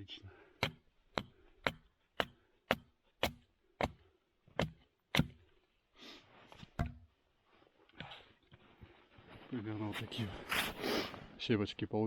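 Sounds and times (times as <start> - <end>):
hatchet chopping wood: 0.6 - 5.5, 6.8 - 7.1.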